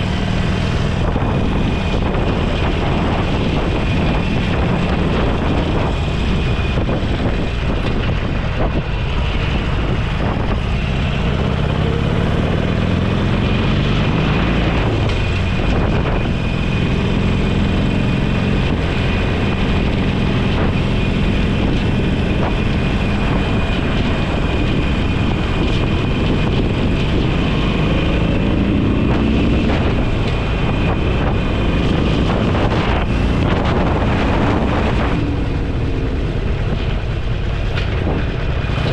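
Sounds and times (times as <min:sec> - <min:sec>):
motorcycle engine accelerating: 0:00.0 - 0:38.9
wind noise on microphone: 0:00.0 - 0:38.9.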